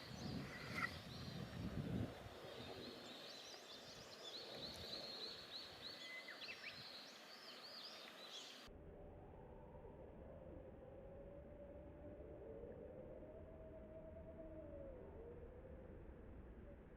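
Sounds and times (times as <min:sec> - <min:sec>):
small birds chirping: 0:00.0 - 0:08.7.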